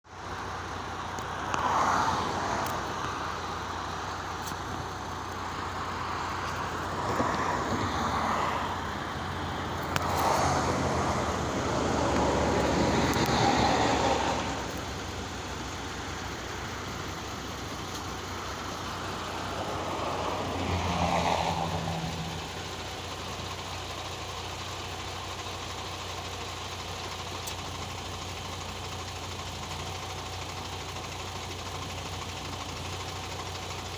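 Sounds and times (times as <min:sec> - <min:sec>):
vehicles passing: 0:00.1 - 0:25.6
truck engine idling: 0:00.1 - 0:33.9.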